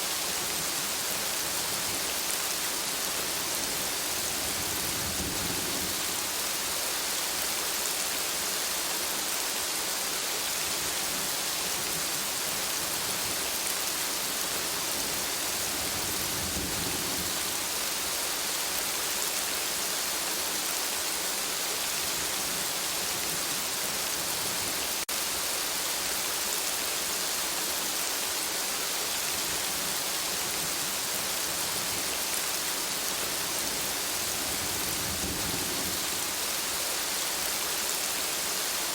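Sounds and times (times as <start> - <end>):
steady rain pattering: 0.0 - 38.9
distant thunder rumble: 34.2 - 36.4.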